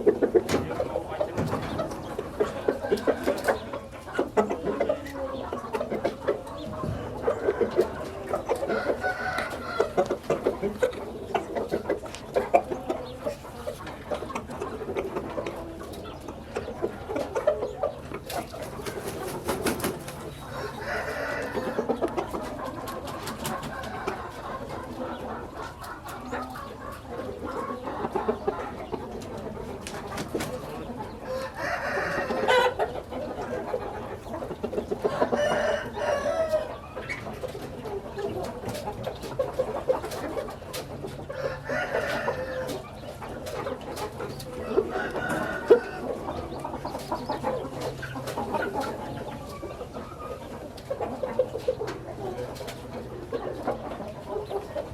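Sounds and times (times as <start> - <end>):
roosters crowing: 0.0 - 14.2, 16.6 - 27.1, 30.5 - 34.0, 34.9 - 37.2, 40.9 - 50.4
chickens clucking: 0.0 - 54.9.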